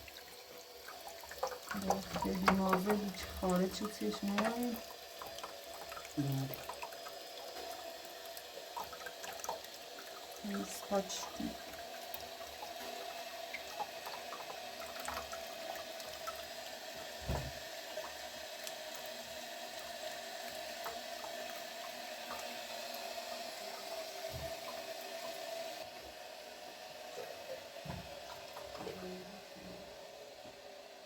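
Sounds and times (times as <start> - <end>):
scouring pad washing dishes: 0.0 - 25.8
water running: 0.0 - 31.0
dull knock: 17.2 - 17.6.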